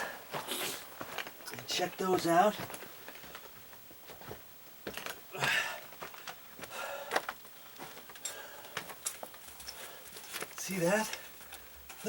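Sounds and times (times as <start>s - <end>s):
scraping rustles: 7.2s - 12.0s.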